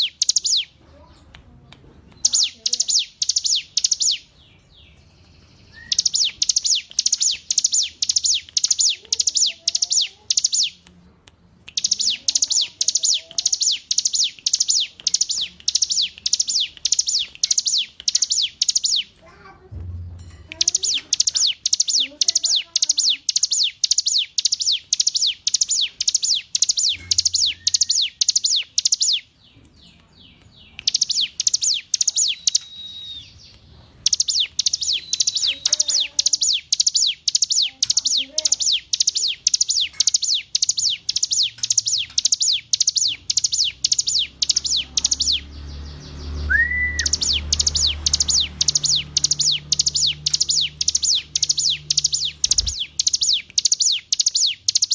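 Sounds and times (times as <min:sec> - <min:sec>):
bird singing sharp notes: 0:02.2 - 0:10.8, 0:20.0 - 0:54.9.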